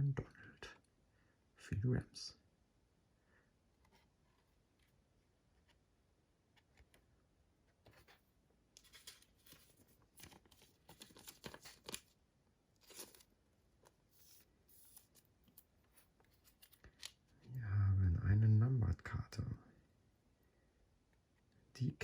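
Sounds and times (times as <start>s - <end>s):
trading cards rustling: 8.8s - 12.2s, 12.8s - 17.3s.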